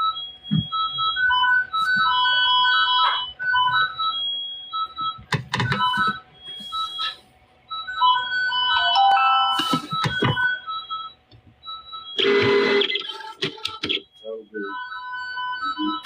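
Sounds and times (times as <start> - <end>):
electronic beeping melody: 4.8 - 16.0.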